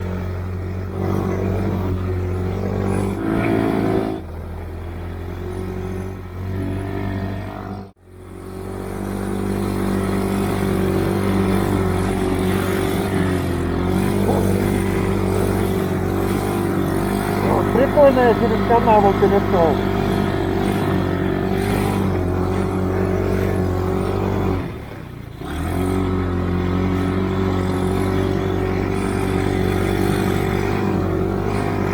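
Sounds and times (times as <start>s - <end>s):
snowmobile engine revving: 0.0s - 31.9s.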